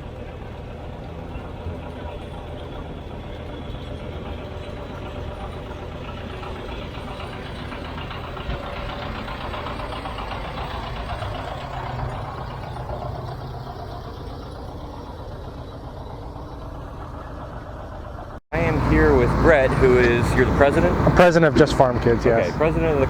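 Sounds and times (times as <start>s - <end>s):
tractor engine rumbling: 0.0s - 23.0s.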